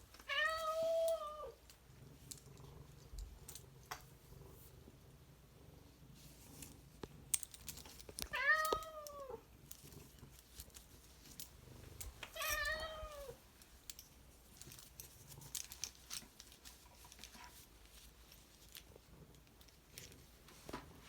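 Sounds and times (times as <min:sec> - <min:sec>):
cat meowing: 0:08.3 - 0:09.4, 0:12.4 - 0:13.4.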